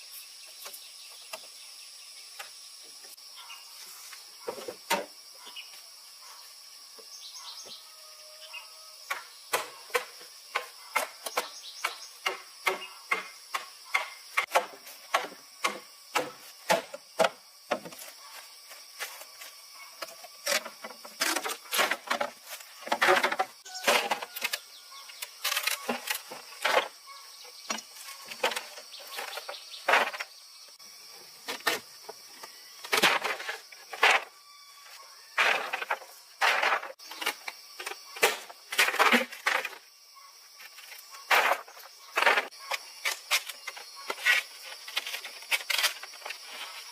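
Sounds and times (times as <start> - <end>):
insects buzzing: 0.0 - 46.9.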